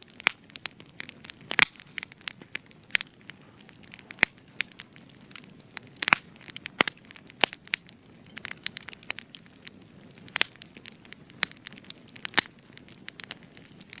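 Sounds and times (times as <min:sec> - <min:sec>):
low hiss of burning: 0:00.0 - 0:14.0
wood fire crackling: 0:00.0 - 0:14.0.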